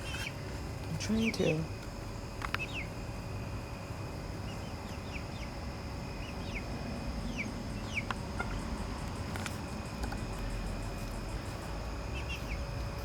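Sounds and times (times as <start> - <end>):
chicks peeping: 0.0 - 0.4, 2.3 - 3.0, 4.3 - 13.0.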